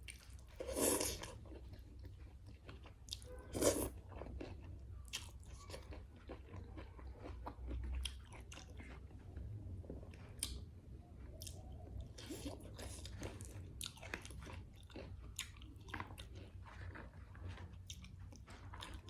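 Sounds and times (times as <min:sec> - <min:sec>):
person chewing crunchy food: 0:00.0 - 0:10.7, 0:11.3 - 0:19.0.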